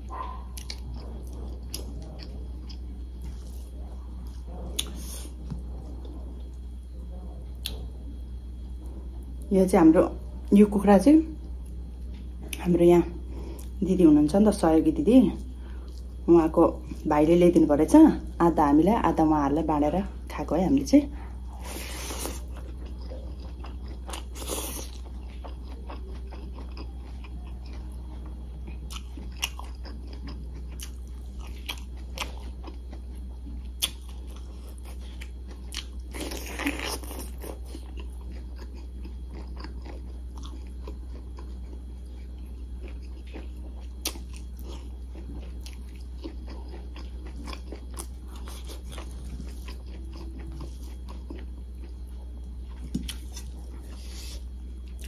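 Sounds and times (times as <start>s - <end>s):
steady low hum: 0.0s - 55.0s
wet chewing and biting: 21.7s - 42.2s, 42.8s - 55.0s.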